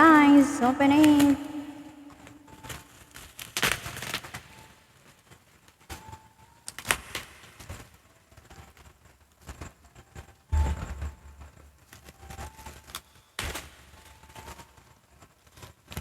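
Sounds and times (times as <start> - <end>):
bubble wrap crinkling and clicking: 2.1 - 10.3.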